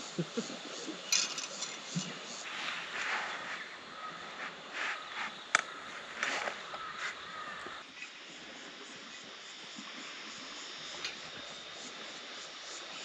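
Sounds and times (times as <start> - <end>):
faint outdoor hiss: 0.0 - 13.0
crow cawing: 6.7 - 7.8.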